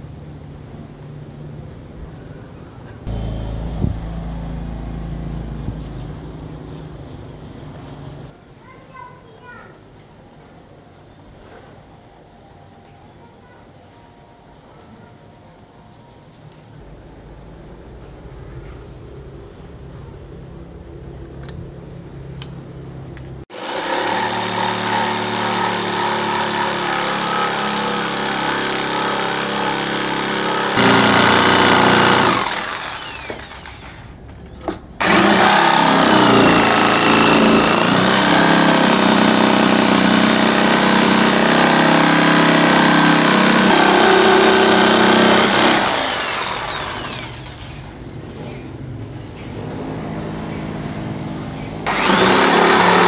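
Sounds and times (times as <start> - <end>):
power tool motor cutting wood: 23.5 - 34.2, 35.0 - 47.9, 51.8 - 53.0.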